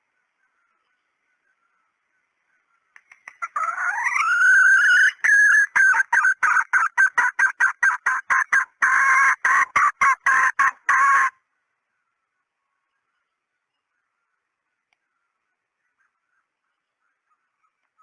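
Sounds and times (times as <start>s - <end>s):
junglefowl squealing and clucking: 3.1s - 11.4s.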